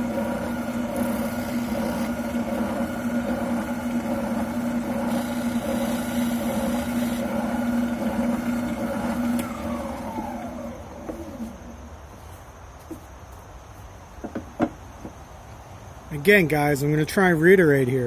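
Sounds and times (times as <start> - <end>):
sander motor humming: 0.0 - 11.9.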